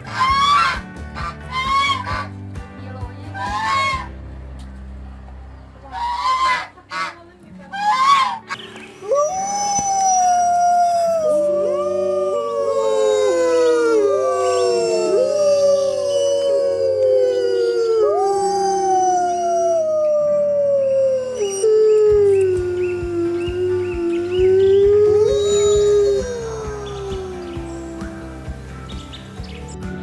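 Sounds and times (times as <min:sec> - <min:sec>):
wolves howling: 0:07.9 - 0:28.8.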